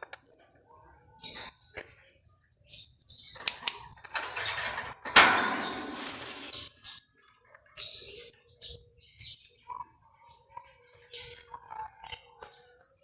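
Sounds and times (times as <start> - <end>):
bird rustling and fluttering in cage: 3.4 - 6.6.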